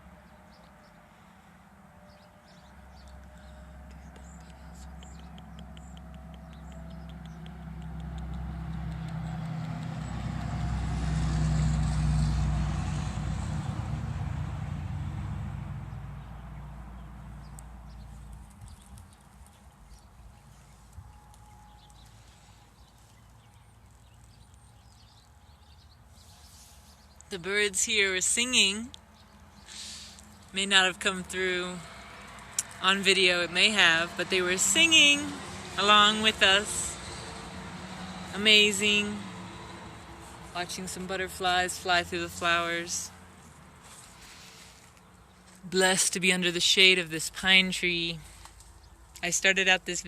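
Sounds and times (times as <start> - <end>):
motor engine passing by: 0.0 - 45.7.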